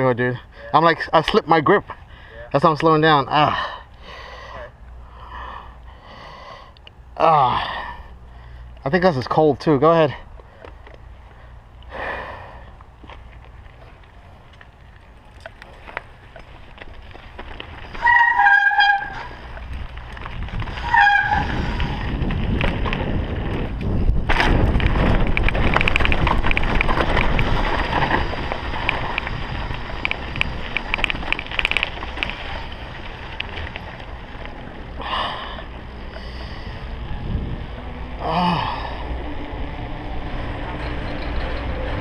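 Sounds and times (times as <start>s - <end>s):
mountain bike rattling downhill: 8.5s - 42.0s
wind noise: 16.2s - 42.0s
high brake squeals: 17.9s - 19.4s, 20.8s - 21.6s.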